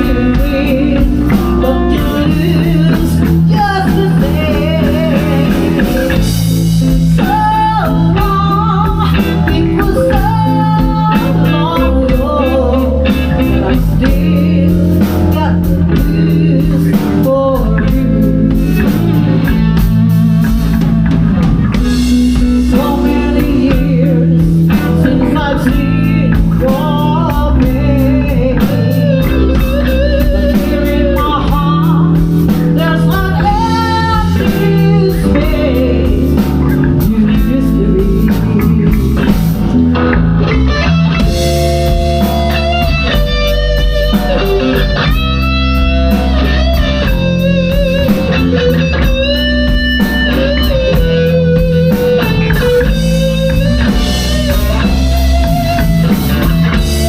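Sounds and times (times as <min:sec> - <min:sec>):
bass and drums: 0:00.0 - 0:57.0
lead guitar bending notes: 0:00.0 - 0:57.0.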